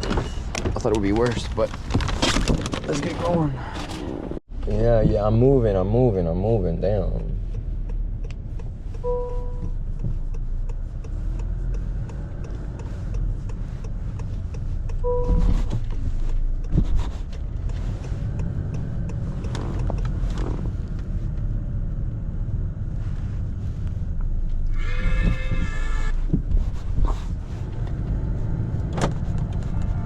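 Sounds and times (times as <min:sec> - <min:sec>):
car interior rumble: 0:00.0 - 0:30.0
short beep: 0:09.0 - 0:09.7, 0:15.0 - 0:15.5.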